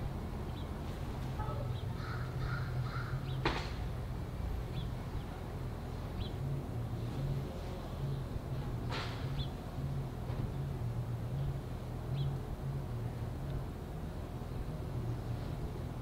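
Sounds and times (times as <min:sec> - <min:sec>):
steady low hum: 0:00.0 - 0:16.0
birds chirping: 0:00.4 - 0:03.6
bird calling: 0:01.4 - 0:03.4.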